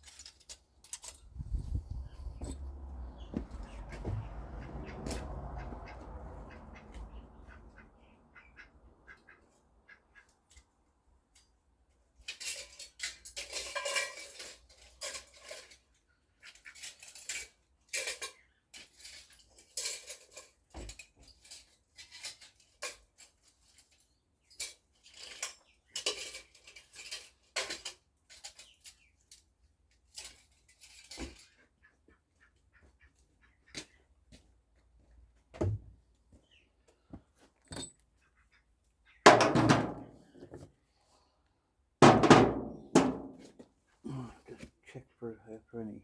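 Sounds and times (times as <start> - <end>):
scrap metal clinking: 12.3 - 15.8.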